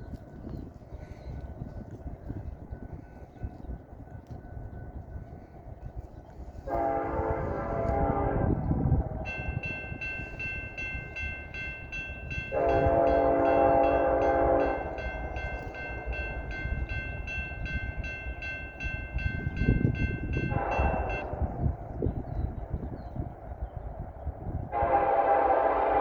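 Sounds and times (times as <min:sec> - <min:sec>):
freight train rumble: 0:00.0 - 0:26.0
locomotive horn: 0:06.6 - 0:09.7, 0:12.4 - 0:15.7, 0:20.4 - 0:21.6, 0:24.7 - 0:26.0
crossing bell dinging: 0:08.8 - 0:21.6.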